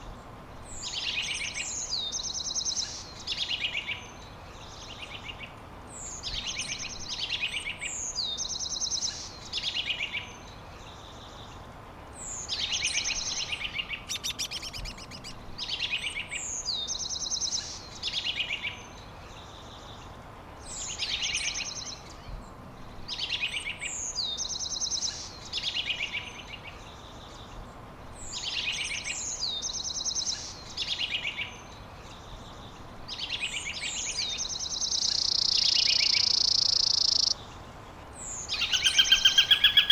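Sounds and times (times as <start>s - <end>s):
steady background hiss: 0.0s - 39.9s
songbird singing trills: 12.2s - 19.9s, 28.2s - 37.5s, 38.1s - 39.9s.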